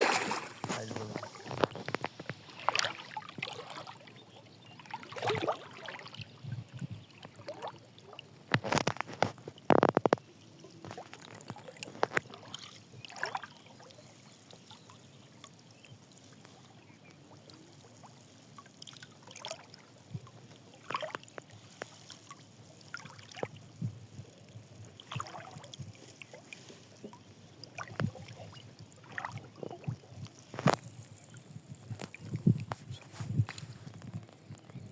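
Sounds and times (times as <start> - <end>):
fish splashing in water: 0.0 - 4.1, 4.8 - 6.2, 8.5 - 13.8, 25.0 - 33.6.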